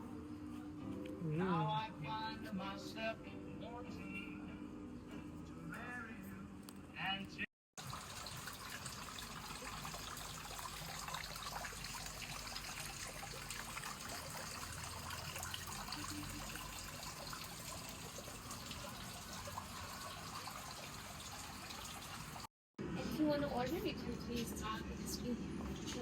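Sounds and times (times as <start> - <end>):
trickle of running water: 7.8 - 22.5.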